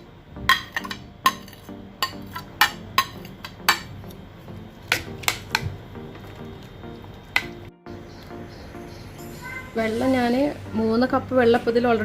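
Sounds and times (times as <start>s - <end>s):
spoon clinking against pot: 0.5s - 3.9s.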